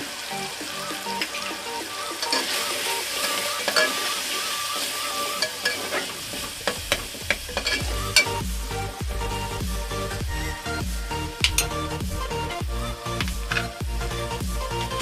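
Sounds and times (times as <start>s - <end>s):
masala sizzling in oil: 0.0s - 8.3s.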